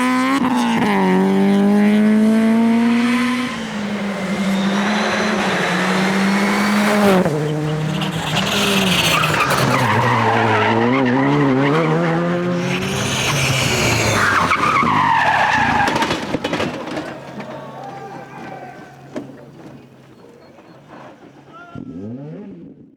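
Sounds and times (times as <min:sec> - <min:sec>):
tyres skidding: 0:00.0 - 0:22.7
rally car engine running hard: 0:18.6 - 0:22.8.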